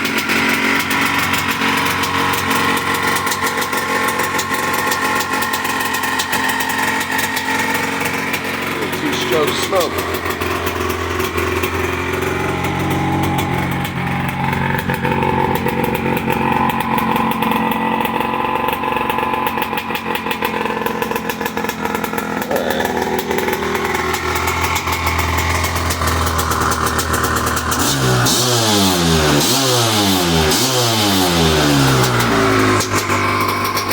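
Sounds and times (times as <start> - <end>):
two-stroke engine idling and revving: 0.0 - 33.9.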